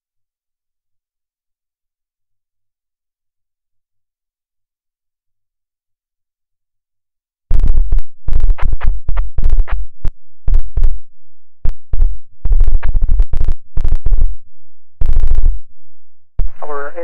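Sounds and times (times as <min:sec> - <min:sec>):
distorted radio transmission: 0:16.4 - 0:17.0.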